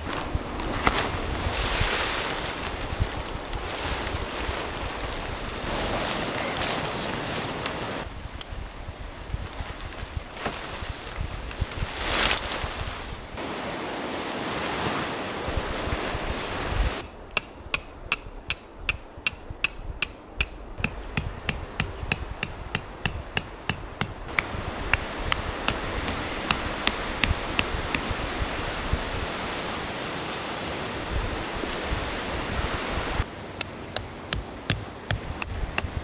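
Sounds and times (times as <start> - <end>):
rushing wind: 0.0 - 36.0
hammer striking metal peg: 17.0 - 28.2, 33.6 - 36.0.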